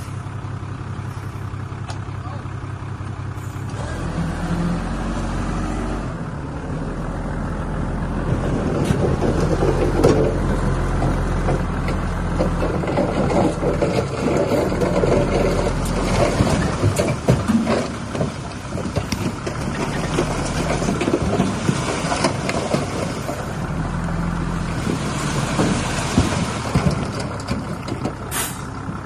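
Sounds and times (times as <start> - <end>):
diesel machinery engine hum: 0.0 - 29.0
rattling and clanking: 8.1 - 29.0.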